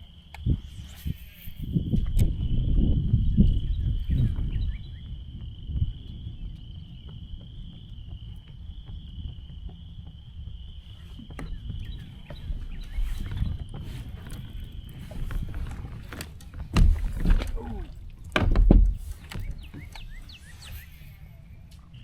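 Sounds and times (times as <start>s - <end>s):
wind rumble on microphone: 0.0s - 22.0s
insects shrilling: 0.1s - 2.1s.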